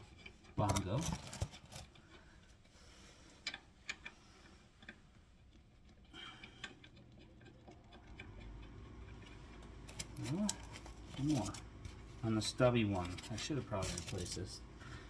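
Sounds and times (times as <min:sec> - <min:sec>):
small parts clicking and ticking: 0:03.3 - 0:11.6, 0:12.3 - 0:14.6.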